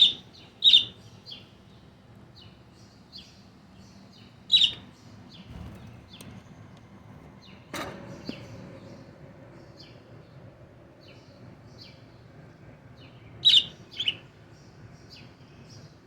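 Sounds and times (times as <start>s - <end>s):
pet bird chirping: 0.0s - 1.6s, 2.4s - 5.1s, 13.4s - 14.3s.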